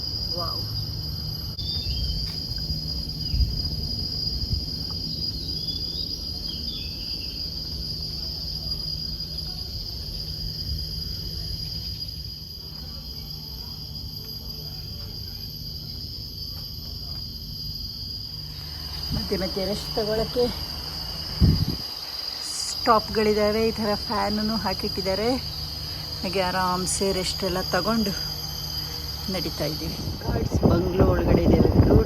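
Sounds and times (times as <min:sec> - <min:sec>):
insects droning: 0:00.0 - 0:32.0
bird chirps: 0:01.6 - 0:02.3.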